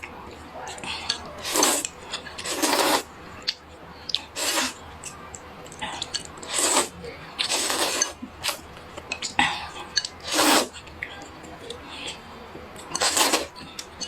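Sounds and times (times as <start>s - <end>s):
noodle slurping: 1.0s - 3.1s, 4.1s - 4.8s, 6.0s - 8.6s, 10.0s - 10.8s, 12.9s - 13.6s.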